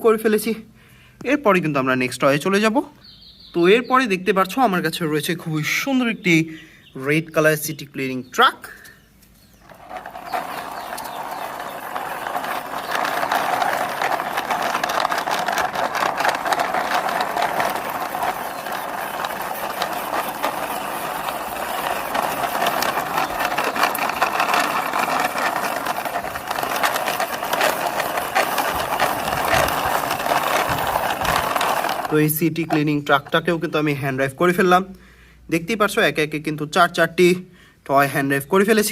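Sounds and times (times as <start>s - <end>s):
toy truck wheels rattling: 9.3s - 33.7s.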